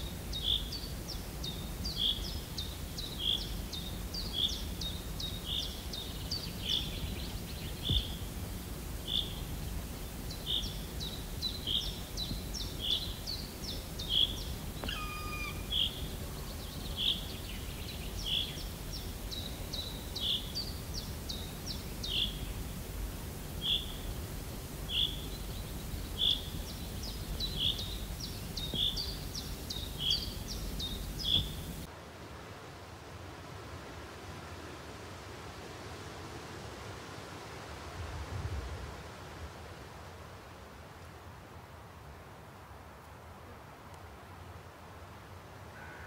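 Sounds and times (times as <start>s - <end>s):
bird chirping with ticks: 0.0s - 8.2s, 10.3s - 22.5s, 24.9s - 31.9s
low outdoor rumble: 0.0s - 34.8s.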